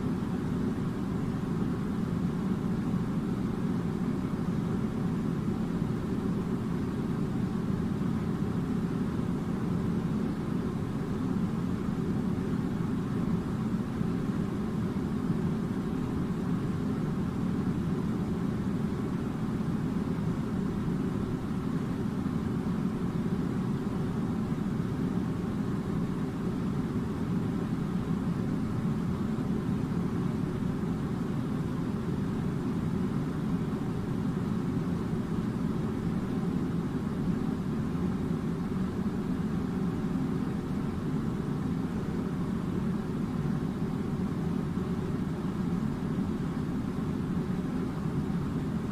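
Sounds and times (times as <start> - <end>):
air conditioner blowing air: 0.0 - 48.9.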